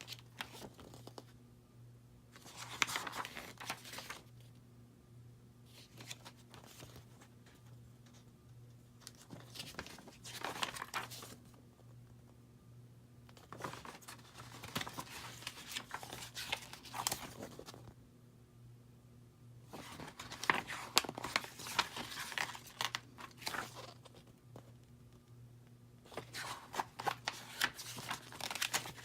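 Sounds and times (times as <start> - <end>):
packing material rustling: 19.8 - 24.2, 26.1 - 29.0.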